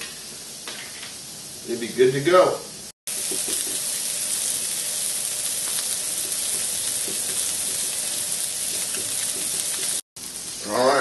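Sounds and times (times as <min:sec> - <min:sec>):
patties sizzling in a pan: 0:00.0 - 0:11.0.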